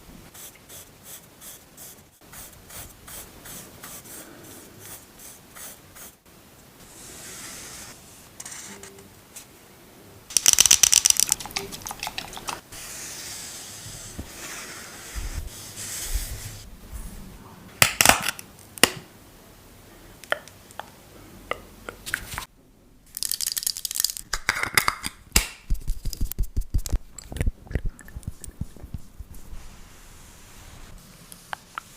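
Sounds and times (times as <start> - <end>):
rapid crackling of skincare products: 10.3 - 12.6.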